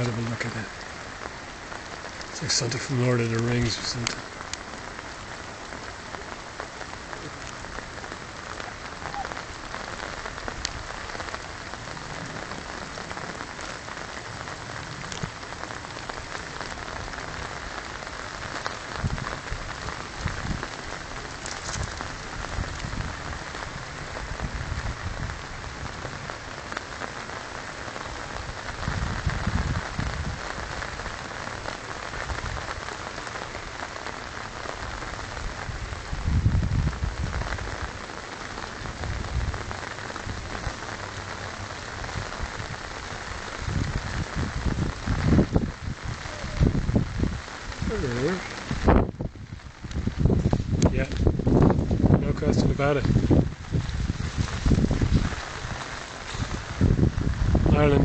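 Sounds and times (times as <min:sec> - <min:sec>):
rushing water: 0:00.0 - 0:58.0
steady rain: 0:00.0 - 0:58.0
low rumbles: 0:35.5 - 0:58.0.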